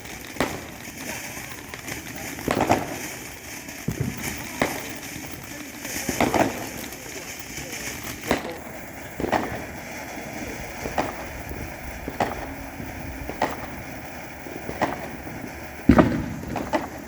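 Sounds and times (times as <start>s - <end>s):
steady noisy background: 0.0s - 17.0s.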